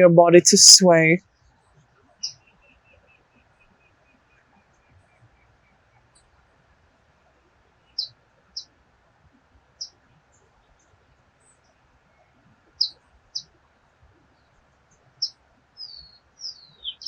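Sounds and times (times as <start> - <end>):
faint steady hiss: 0.0 - 1.2
small bird chirping: 7.9 - 8.6, 12.8 - 13.5, 15.2 - 17.0.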